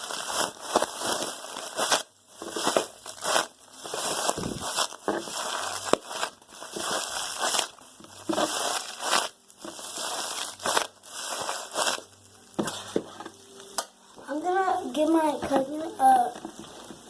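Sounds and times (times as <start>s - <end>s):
plastic bag crinkling when squeezed: 0.0s - 13.5s.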